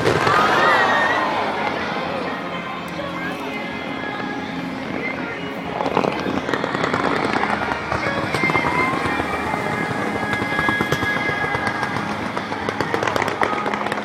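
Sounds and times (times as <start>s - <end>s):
fireworks crackling and popping: 0.0s - 14.0s
music playing: 0.0s - 14.0s.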